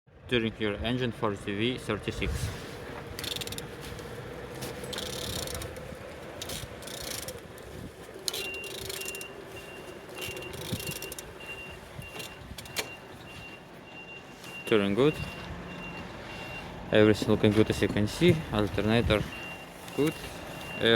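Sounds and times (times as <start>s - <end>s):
reversing alarm beeping: 8.3s - 20.9s.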